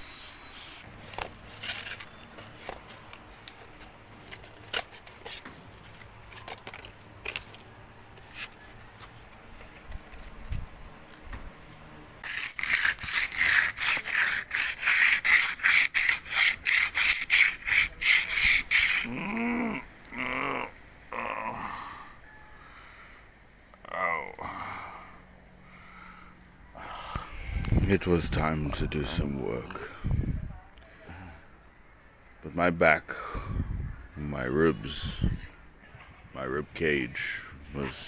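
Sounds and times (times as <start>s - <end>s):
rhythmic rasping strokes: 12.2s - 19.3s.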